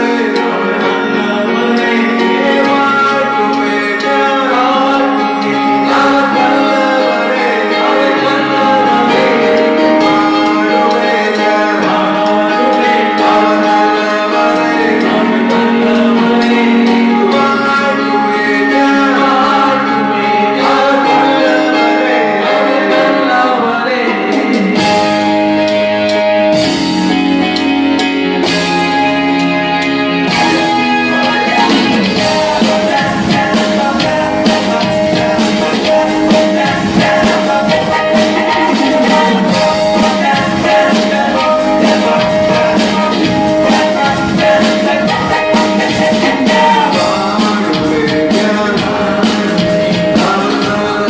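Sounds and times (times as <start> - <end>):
person singing: 0.0 - 25.9, 30.0 - 51.0
keyboard chords: 0.0 - 51.0
drum kit beat: 24.3 - 51.0
sharp percussion strikes: 30.3 - 51.0.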